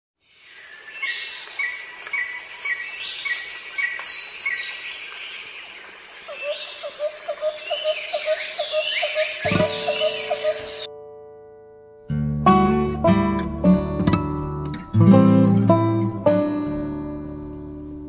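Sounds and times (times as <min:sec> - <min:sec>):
birds chirping: 0:00.2 - 0:10.9.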